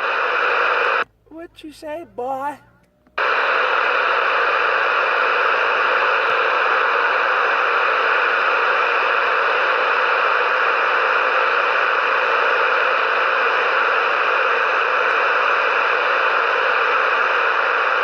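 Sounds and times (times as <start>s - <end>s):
radio static hiss: 0.0s - 2.6s, 3.2s - 18.0s.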